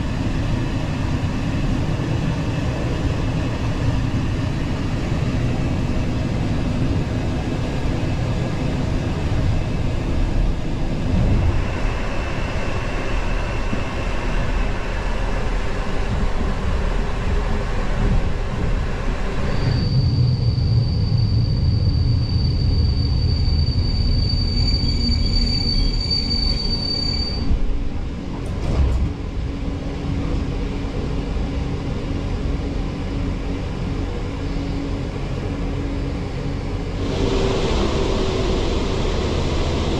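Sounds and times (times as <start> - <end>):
train rumbling on rails: 0.0 - 39.9
high wheel squeal: 19.4 - 27.6.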